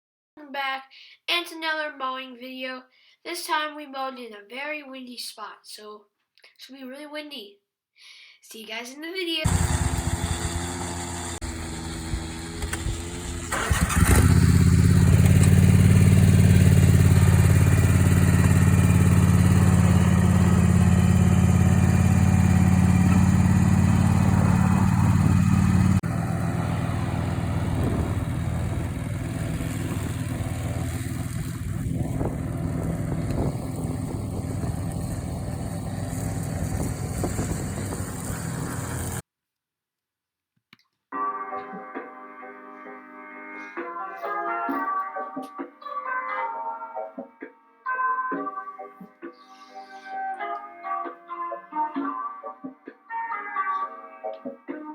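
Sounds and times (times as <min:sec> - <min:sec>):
lawn mower engine running: 0:09.5 - 0:39.2.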